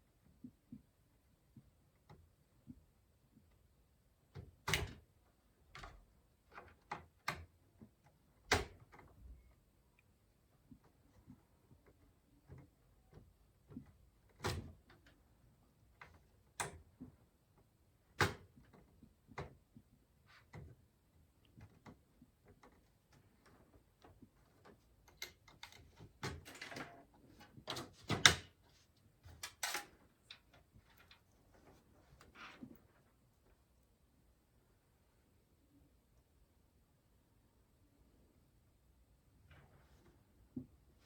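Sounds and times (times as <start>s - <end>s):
computer parts clicking and knocking: 24.7s - 28.6s.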